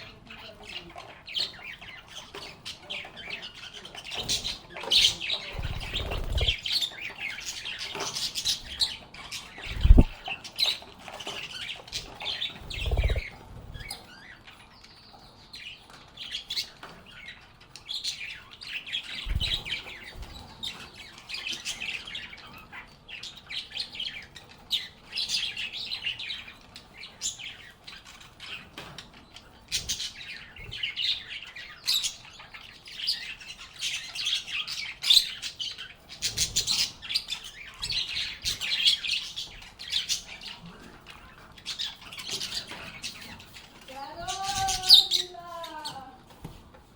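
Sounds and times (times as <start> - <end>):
birds chirping and squawking: 0.0 - 46.3
dull low thumps: 9.8 - 10.2.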